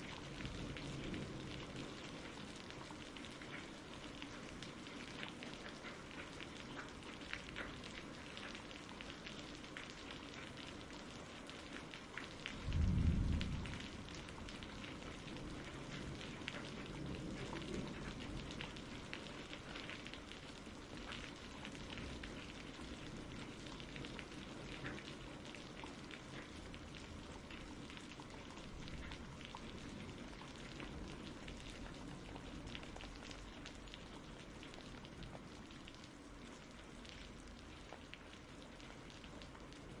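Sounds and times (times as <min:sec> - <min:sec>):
low rumble of thunder: 0:00.0 - 0:03.8, 0:12.5 - 0:20.0
steady rain: 0:00.0 - 0:40.0.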